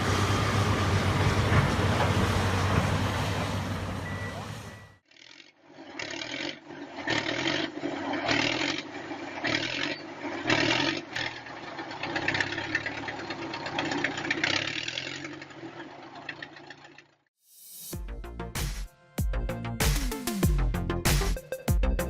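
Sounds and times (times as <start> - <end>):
heavy machine engine under load: 0.0 - 5.0, 5.9 - 17.2.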